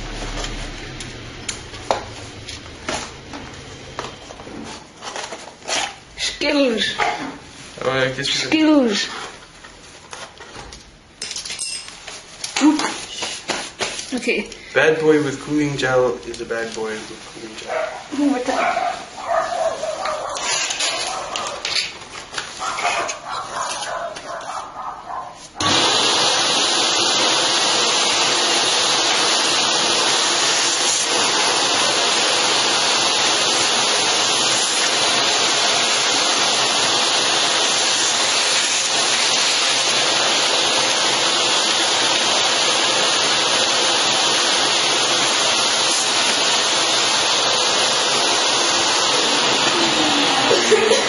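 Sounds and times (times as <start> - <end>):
vacuum cleaner air rush: 0.0 - 4.9, 12.6 - 21.7, 25.5 - 51.0.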